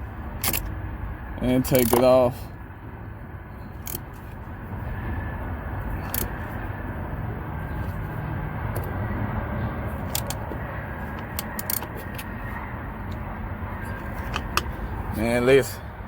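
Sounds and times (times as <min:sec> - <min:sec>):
steady low rumble: 0:00.0 - 0:16.0
ratcheting wrench clicking: 0:01.7 - 0:02.0, 0:03.8 - 0:04.2, 0:06.0 - 0:06.3, 0:10.1 - 0:10.4, 0:11.1 - 0:12.3.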